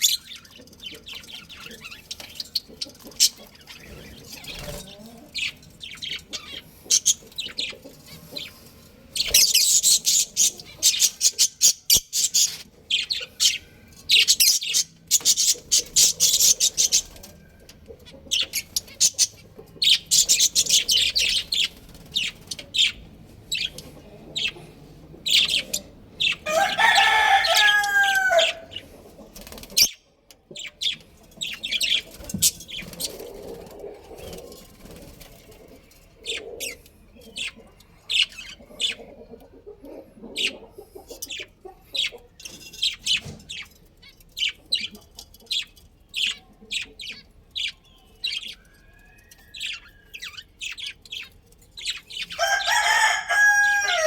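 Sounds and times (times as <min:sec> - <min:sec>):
small birds chirping: 0:00.0 - 0:54.0
rooster crowing: 0:26.4 - 0:28.7, 0:52.3 - 0:54.0.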